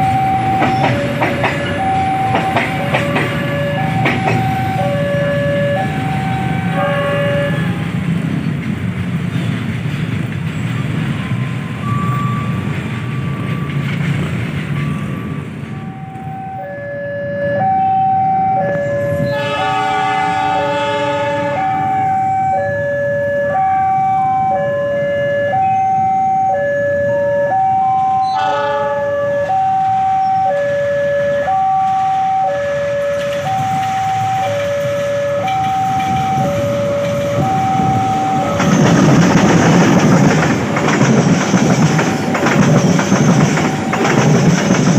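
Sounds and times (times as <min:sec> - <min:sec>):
two-tone crossing alarm: 0:00.0 - 0:08.0, 0:10.7 - 0:44.9
train rumbling: 0:00.0 - 0:44.9
train horn: 0:02.2 - 0:08.0, 0:18.9 - 0:22.4, 0:28.2 - 0:30.1.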